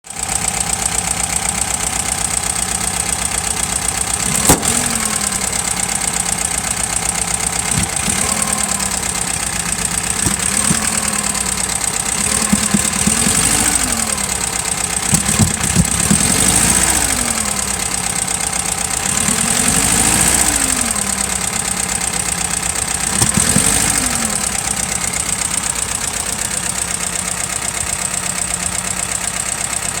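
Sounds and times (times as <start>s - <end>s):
car engine idling and revving: 0.0s - 30.0s
sharp crack: 4.1s - 16.3s.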